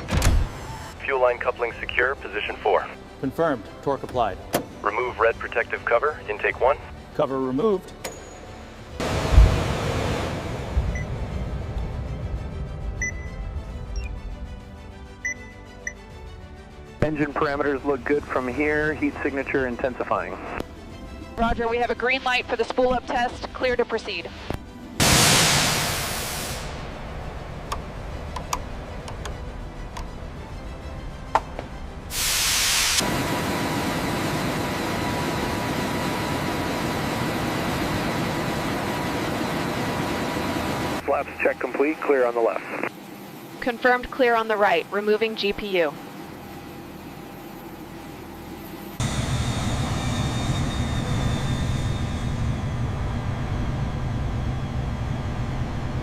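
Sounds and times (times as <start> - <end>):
jet engine running: 4.1 - 14.4, 17.0 - 56.0
loud hiss: 25.0 - 26.8, 32.1 - 33.0.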